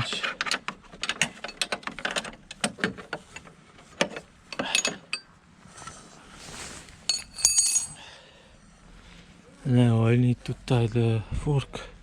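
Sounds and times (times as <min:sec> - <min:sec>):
wrench metal clicks and clinks: 0:04.6 - 0:05.3
soft rustle: 0:05.6 - 0:07.9.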